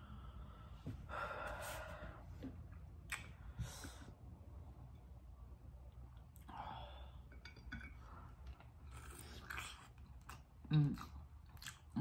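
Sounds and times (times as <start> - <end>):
wet chewing mouth sounds: 8.9 - 12.0.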